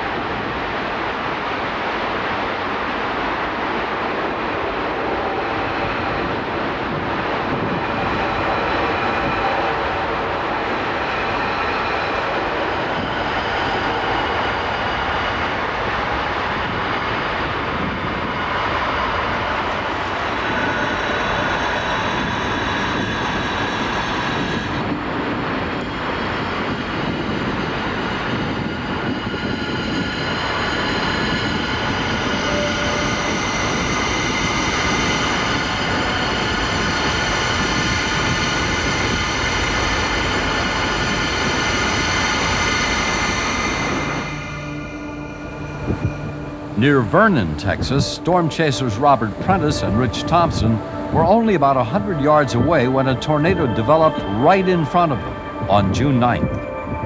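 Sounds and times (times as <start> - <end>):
strong wind roaring: 0.0 - 57.0
faint high tones: 27.6 - 57.0.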